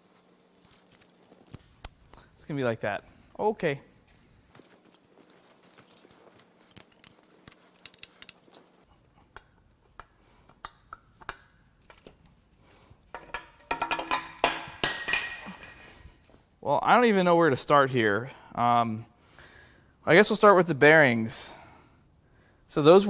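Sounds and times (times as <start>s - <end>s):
metal engine parts clinking: 4.6s - 8.8s.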